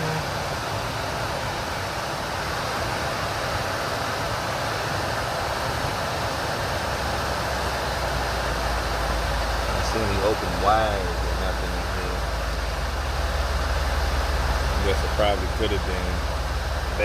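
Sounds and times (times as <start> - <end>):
rushing air noise: 0.3 - 17.0
diesel engine idling: 6.7 - 17.0.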